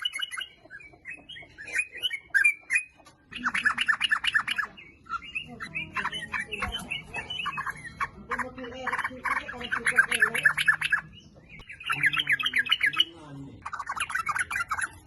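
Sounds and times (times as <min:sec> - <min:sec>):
bird singing bubbly chattering notes: 0:00.0 - 0:15.0.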